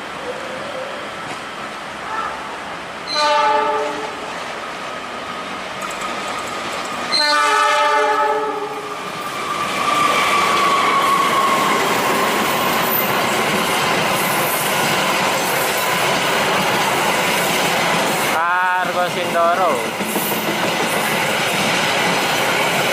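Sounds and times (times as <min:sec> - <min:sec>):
train running over tracks: 0:00.0 - 0:22.9
train horn blast: 0:03.1 - 0:04.2, 0:07.1 - 0:08.8.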